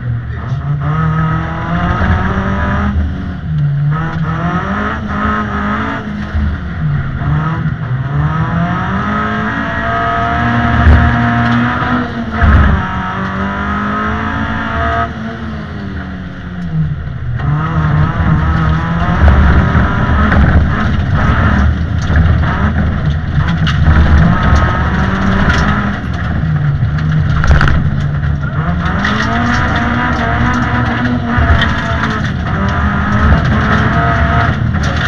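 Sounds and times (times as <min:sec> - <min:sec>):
car engine revving: 0:00.0 - 0:35.0
road noise: 0:00.0 - 0:35.0
loud thumps: 0:10.6 - 0:13.0, 0:17.4 - 0:35.0.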